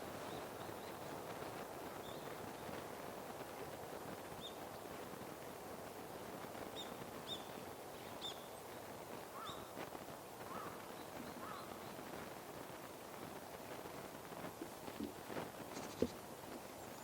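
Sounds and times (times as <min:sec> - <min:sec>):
steady background hiss: 0:00.0 - 0:17.0
lower bird calls: 0:09.3 - 0:09.8, 0:10.5 - 0:12.1
birds chirping: 0:10.5 - 0:12.1.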